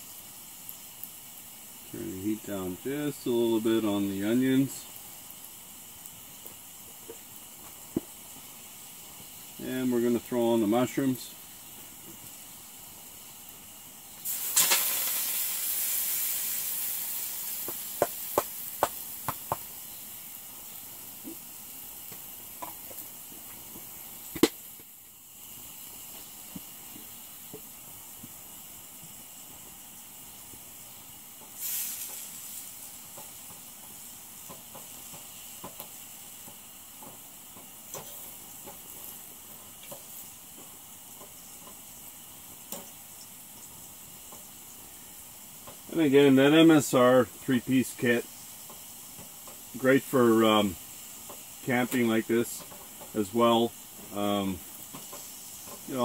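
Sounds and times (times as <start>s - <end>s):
food sizzling in frying pan: 0.0s - 56.0s
steady background hiss: 0.0s - 56.0s
sharp taps on pan: 17.6s - 19.7s, 24.3s - 24.6s.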